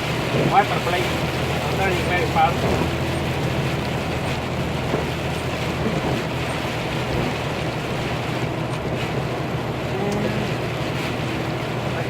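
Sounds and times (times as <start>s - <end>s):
heavy rain hissing on truck cab: 0.0s - 12.0s
truck engine drone: 0.0s - 12.0s
tyres on wet road: 0.0s - 12.0s.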